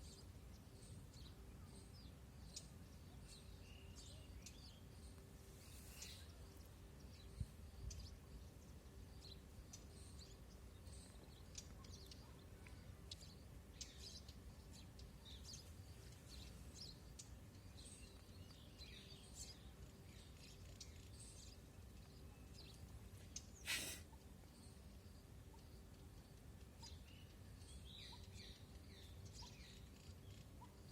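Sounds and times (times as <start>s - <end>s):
bird chirps: 26.8s - 30.7s.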